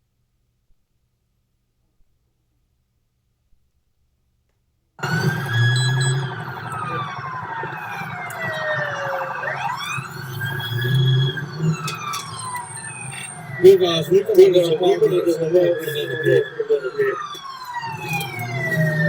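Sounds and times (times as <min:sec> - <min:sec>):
police sirens wailing: 0:05.0 - 0:19.0.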